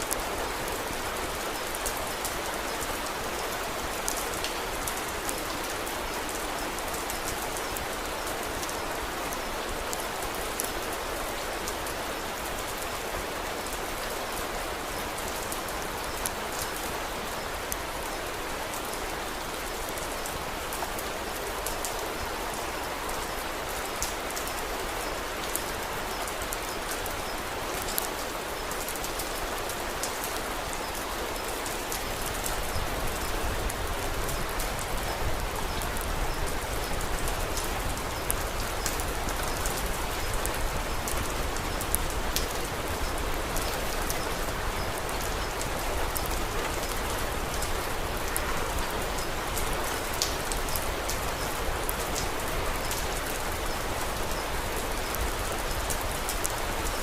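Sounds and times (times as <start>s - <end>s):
steady rain falling: 0.0s - 57.0s
wood fire crackling: 25.5s - 57.0s.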